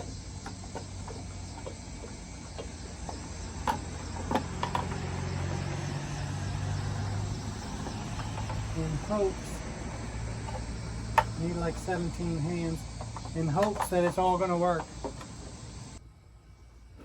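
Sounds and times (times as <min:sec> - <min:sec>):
parts clicking and knocking: 0:00.0 - 0:16.0.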